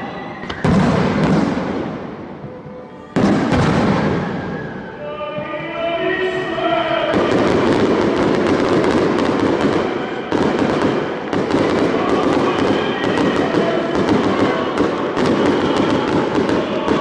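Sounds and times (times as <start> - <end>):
fireworks crackling and banging: 0.5 - 2.6, 3.2 - 4.9, 7.0 - 17.0.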